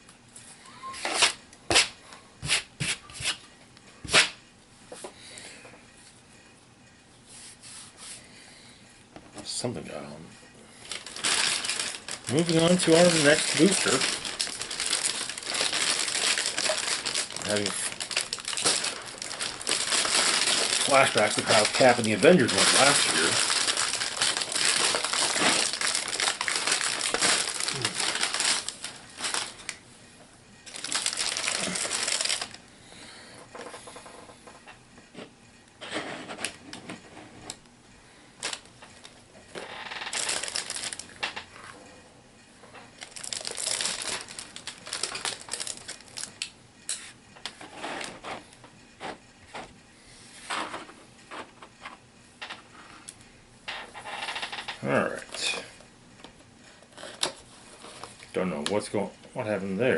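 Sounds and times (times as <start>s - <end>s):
wrapping crinkling: 10.8s - 29.8s, 30.6s - 32.6s, 38.4s - 41.4s, 43.0s - 48.2s.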